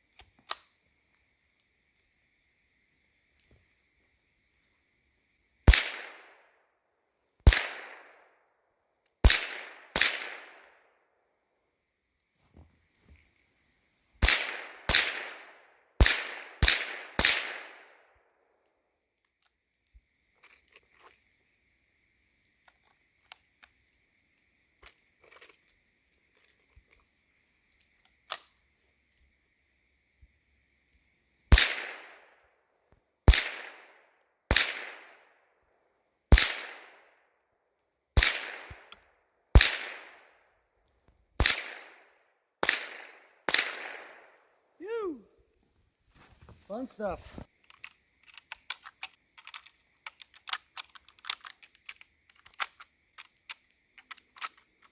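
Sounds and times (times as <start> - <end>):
rifle shots echoing: 5.7 - 6.4, 7.5 - 8.2, 9.2 - 10.7, 14.2 - 18.0, 31.5 - 32.2, 33.3 - 33.9, 34.5 - 35.2, 36.3 - 37.0, 38.2 - 38.9, 39.6 - 40.3, 41.4 - 42.0, 42.6 - 44.4.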